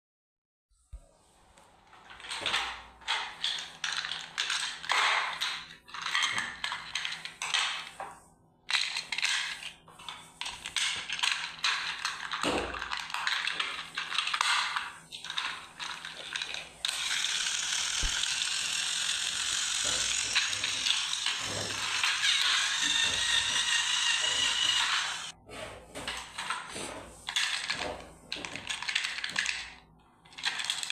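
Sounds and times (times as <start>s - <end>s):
toy gear mechanism clicking: 2.2s - 7.9s, 8.7s - 9.7s, 10.4s - 25.4s, 28.4s - 30.9s
toy gear mechanism whirring: 2.2s - 7.9s, 8.7s - 9.8s, 10.4s - 25.4s, 27.3s - 30.9s.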